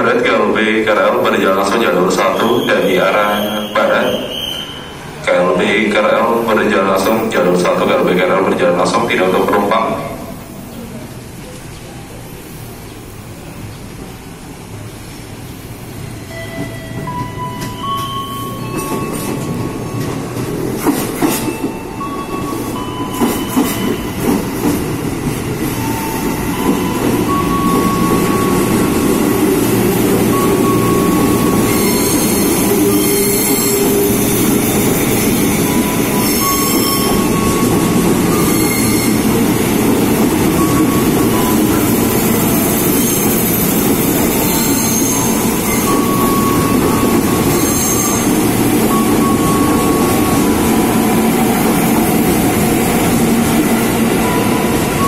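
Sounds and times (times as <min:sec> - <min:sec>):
train wheels squealing: 0:02.2 - 0:05.2, 0:30.3 - 0:39.4, 0:40.6 - 0:50.5
train wheels rumbling on rail: 0:06.4 - 0:55.0
train knocking: 0:16.2 - 0:55.0.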